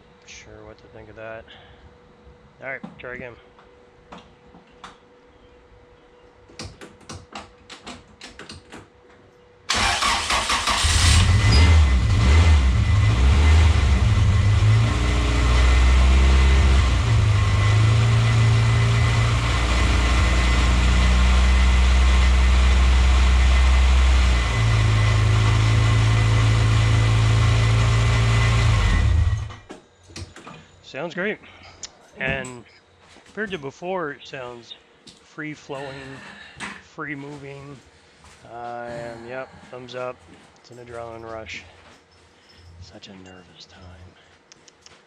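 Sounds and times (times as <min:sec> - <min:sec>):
car engine starting and idling: 0:09.7 - 0:29.6.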